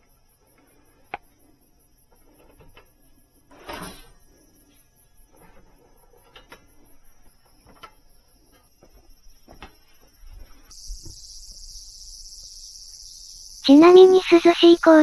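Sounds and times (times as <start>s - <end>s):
insect chorus: 0.0s - 15.0s
faint clicks and knocks: 5.2s - 9.8s.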